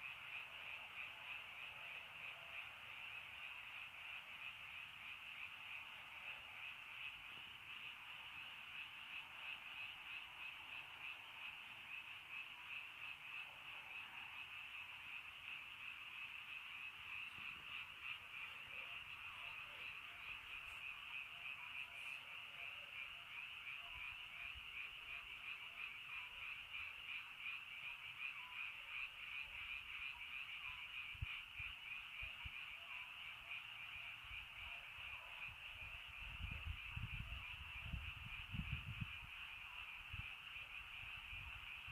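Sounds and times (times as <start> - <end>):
frogs trilling in chorus: 0.0 - 41.9.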